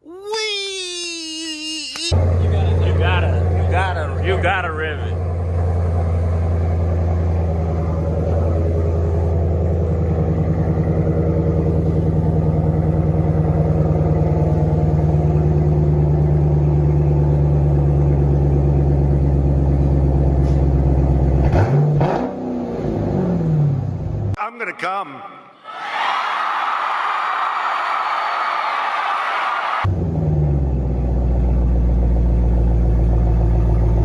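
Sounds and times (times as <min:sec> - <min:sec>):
car engine droning through exhaust: 0:02.2 - 0:24.3, 0:29.9 - 0:34.0.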